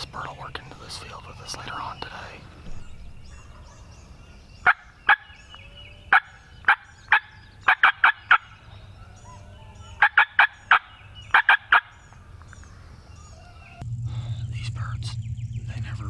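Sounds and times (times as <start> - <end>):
turkey call yelps: 4.6 - 13.8.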